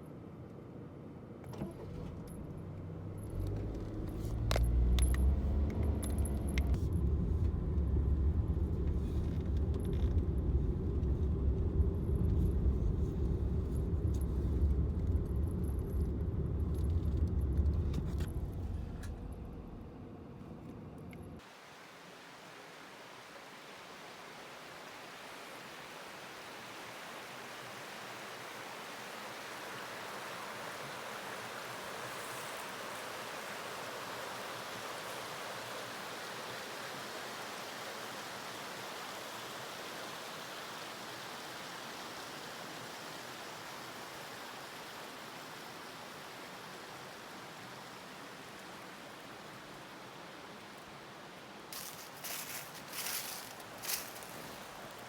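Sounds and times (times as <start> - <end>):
stream rushing: 21.4 - 55.0.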